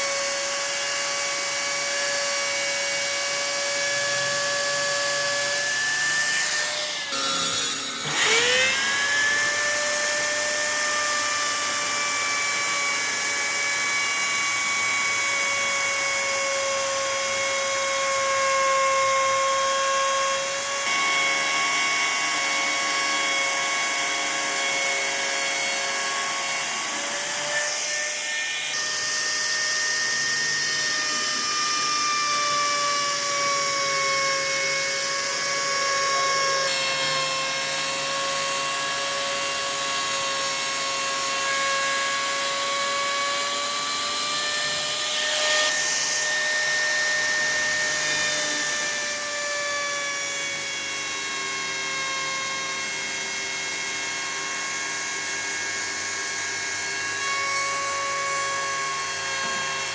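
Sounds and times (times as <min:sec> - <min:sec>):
power tool motor whining: 0:00.0 - 0:59.9.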